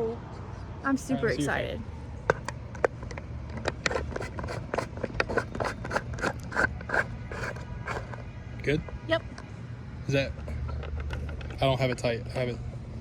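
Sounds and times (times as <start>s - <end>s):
low steady background hum: 0.0s - 13.0s
tripod clicking and scraping: 2.3s - 8.2s, 10.4s - 12.1s.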